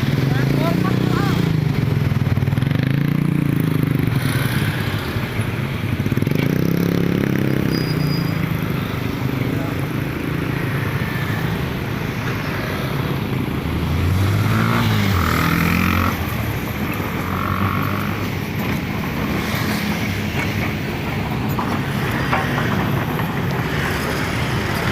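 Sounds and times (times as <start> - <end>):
excavator diesel engine running: 8.5 - 24.9.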